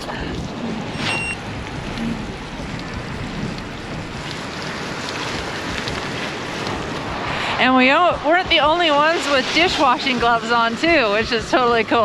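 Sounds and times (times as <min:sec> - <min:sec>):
bicycle tyre road noise: 0:00.0 - 0:12.0
wind rushing over microphone: 0:00.0 - 0:12.0
short high beep: 0:01.0 - 0:01.4.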